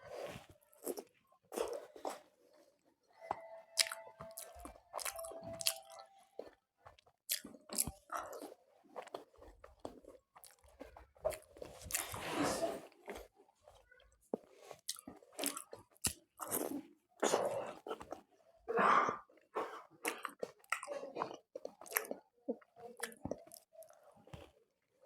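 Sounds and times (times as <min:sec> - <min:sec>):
chewing and crunching food: 0:00.0 - 0:25.0
wet mouth sounds: 0:03.8 - 0:06.5.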